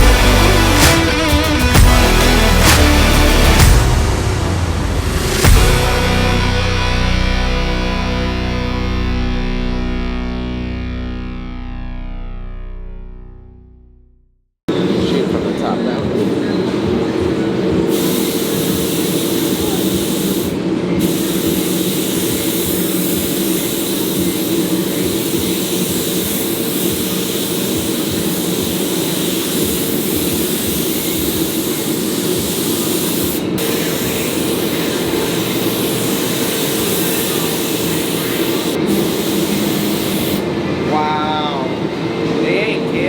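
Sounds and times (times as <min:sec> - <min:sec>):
paint spray gun hissing: 0:17.9 - 0:40.5.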